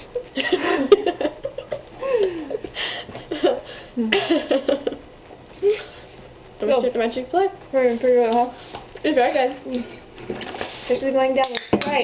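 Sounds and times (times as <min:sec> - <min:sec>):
laughter and giggling: 0:00.2 - 0:02.7, 0:03.3 - 0:05.1.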